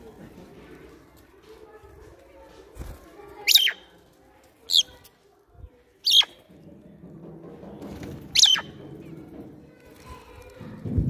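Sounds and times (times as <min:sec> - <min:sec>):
bird calling with falling calls: 0:03.4 - 0:03.9, 0:06.0 - 0:06.4, 0:08.3 - 0:08.8.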